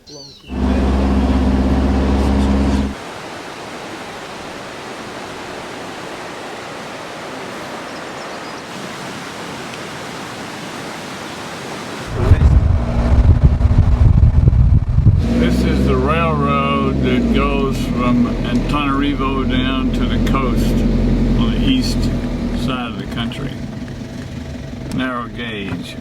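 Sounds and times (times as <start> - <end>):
low steady hum with tones: 0.5 - 3.0
steady rushing noise: 0.5 - 3.0, 12.0 - 16.2.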